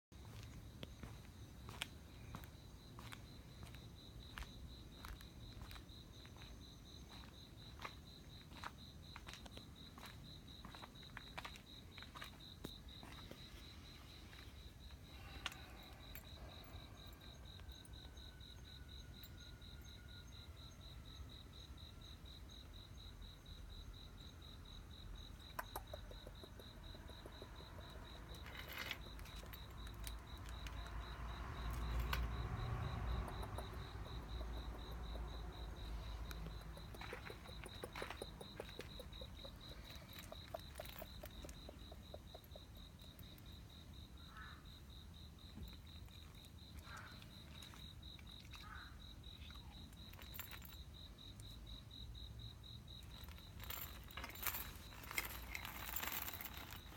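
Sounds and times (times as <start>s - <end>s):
insect chirping: 0.2s - 56.9s.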